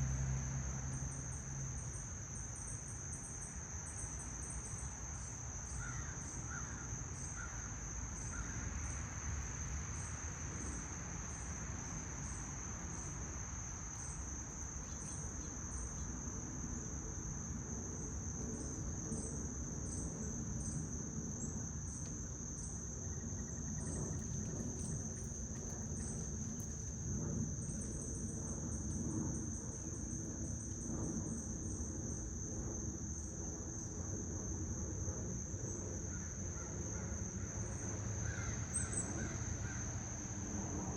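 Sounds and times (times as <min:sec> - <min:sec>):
insect high steady trill: 0:00.4 - 0:40.9
low steady rumble: 0:13.2 - 0:36.0
insect short pulsed calls: 0:22.6 - 0:31.6, 0:36.1 - 0:40.0.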